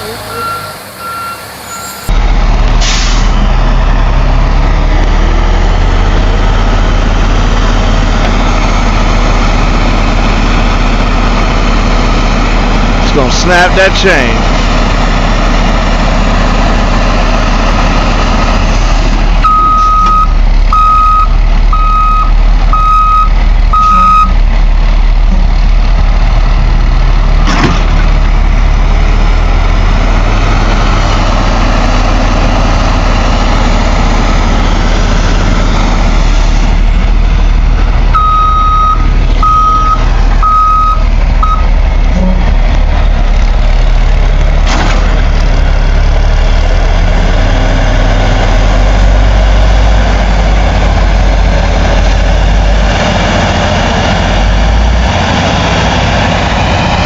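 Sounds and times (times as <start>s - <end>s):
diesel truck engine running: 0.0s - 57.0s
backup alarm beeping: 0.3s - 2.1s, 19.4s - 24.4s, 38.2s - 41.7s.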